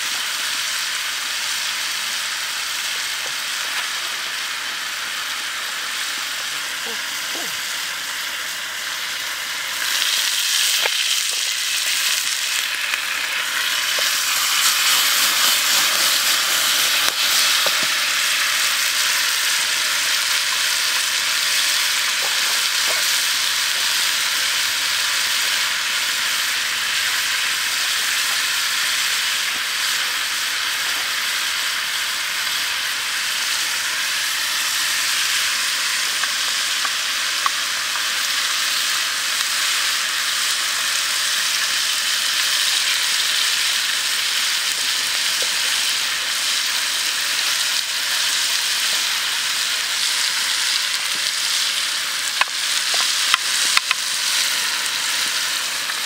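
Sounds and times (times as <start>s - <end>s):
food sizzling in hot oil: 0.0s - 56.0s.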